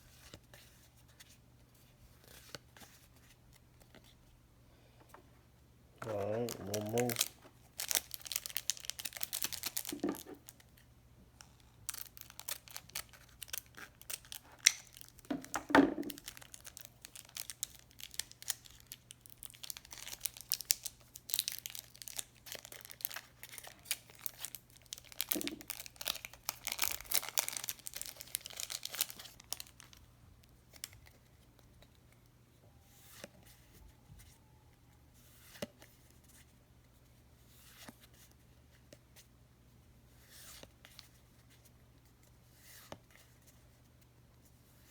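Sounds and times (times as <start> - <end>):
packaging tearing and crinkling: 6.0 - 10.6, 11.9 - 15.3, 16.0 - 30.0.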